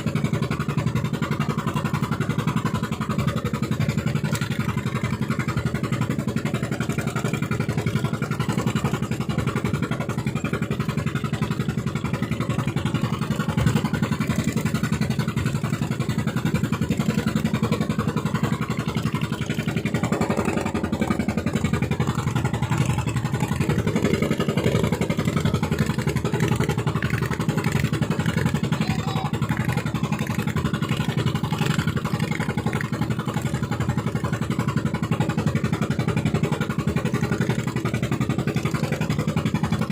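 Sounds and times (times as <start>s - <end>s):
boat engine chugging: 0.0s - 39.9s.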